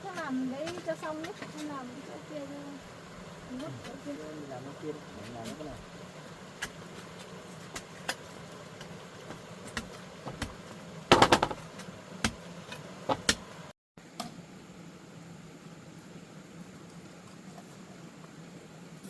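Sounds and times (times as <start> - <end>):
bamboo poles knocking: 8.8 - 12.4, 13.1 - 13.4.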